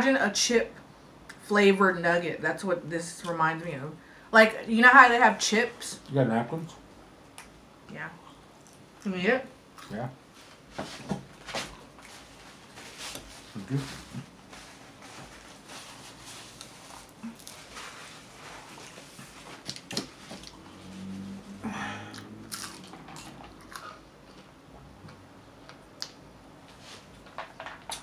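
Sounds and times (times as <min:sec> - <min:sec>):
people chewing crunchy food: 0:15.0 - 0:27.3.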